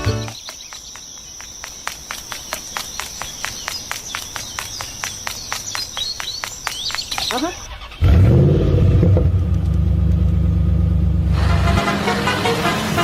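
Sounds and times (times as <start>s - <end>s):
insect clicks: 0.2s - 7.6s
insect trill: 0.2s - 8.0s.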